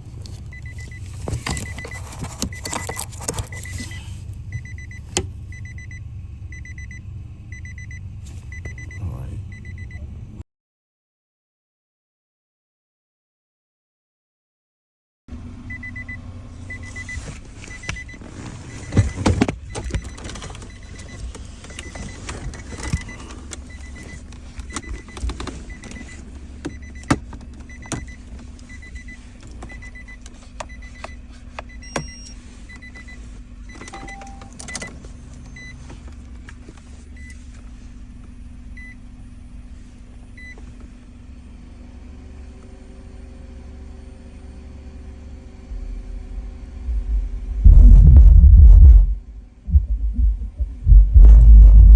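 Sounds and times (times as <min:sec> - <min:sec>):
steady low hum: 0:15.3 - 0:51.9
faint high electronic beep: 0:31.8 - 0:33.1, 0:33.8 - 0:34.6.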